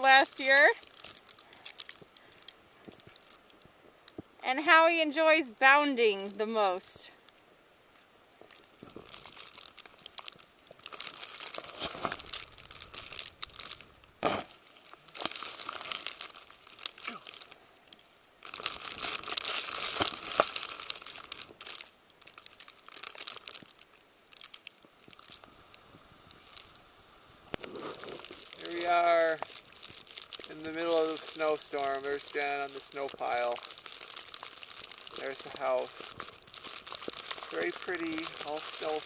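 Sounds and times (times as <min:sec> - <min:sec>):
footsteps crunching in snow: 0:08.4 - 0:17.2, 0:27.6 - 0:39.0.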